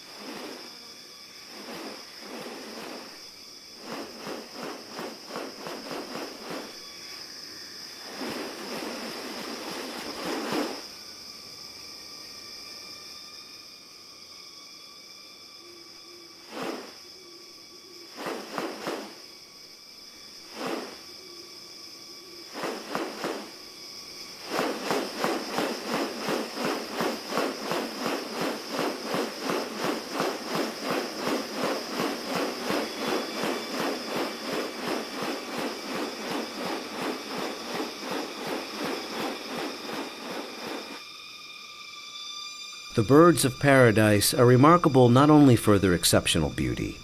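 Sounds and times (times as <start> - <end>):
insects droning: 0.0 - 47.0
rapid pulses: 24.3 - 41.0
short sounds: 42.9 - 47.0.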